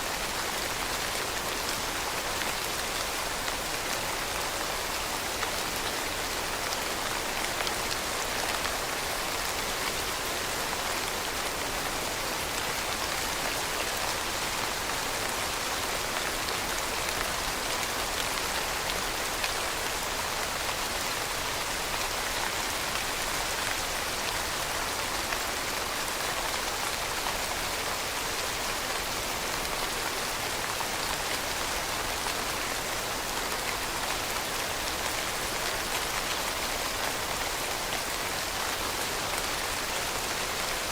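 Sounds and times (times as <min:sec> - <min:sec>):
rain pattering: 0:00.1 - 0:40.9.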